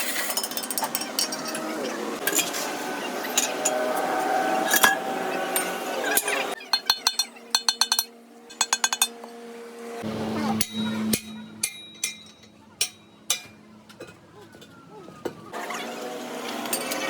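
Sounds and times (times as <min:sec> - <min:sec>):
metal tools clattering: 0:00.0 - 0:02.6, 0:03.3 - 0:03.8, 0:04.7 - 0:09.2, 0:10.6 - 0:14.8, 0:16.6 - 0:17.0.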